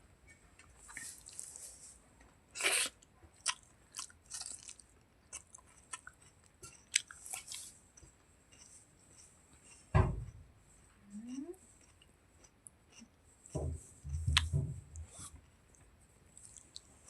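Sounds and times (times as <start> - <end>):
wet chewing and smacking: 2.6 - 9.9.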